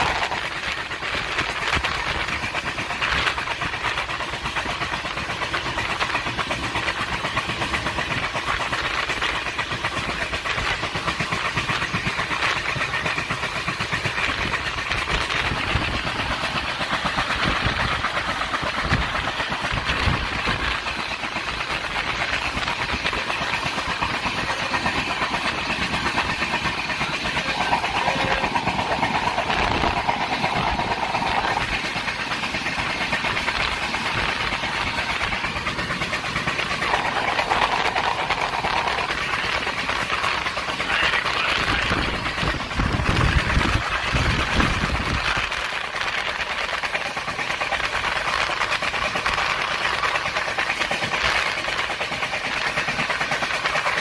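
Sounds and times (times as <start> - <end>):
train wheels on rails: 0.0 - 54.0
high-pitched drone: 24.4 - 35.8, 36.4 - 45.8.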